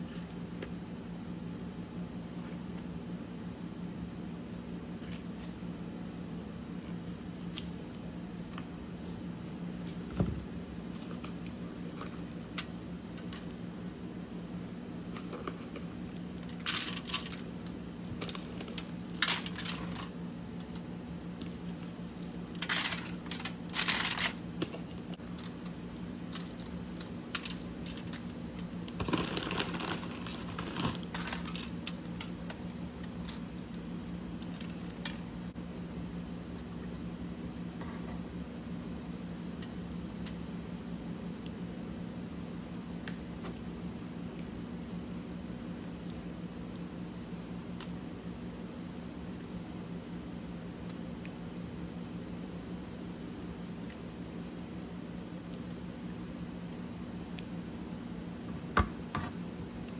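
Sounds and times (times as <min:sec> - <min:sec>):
crunching and crinkling while eating: 0:00.0 - 0:14.0, 0:15.0 - 0:35.4
steady low hum: 0:00.0 - 0:59.9.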